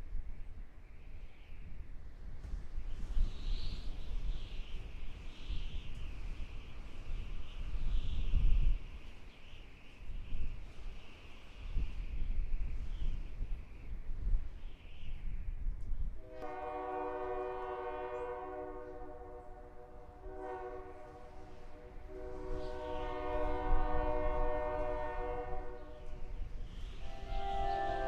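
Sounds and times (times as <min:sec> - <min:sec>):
locomotive air horn blasts: 0:16.2 - 0:26.2, 0:27.0 - 0:28.0.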